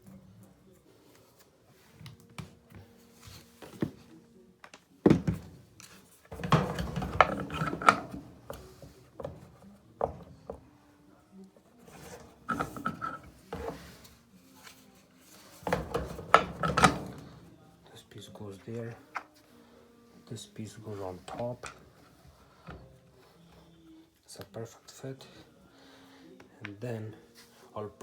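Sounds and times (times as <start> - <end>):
dryer parts clicking and scraping: 4.7 - 10.8, 11.8 - 19.5, 20.3 - 23.6
clatter and rubbing: 11.9 - 17.5.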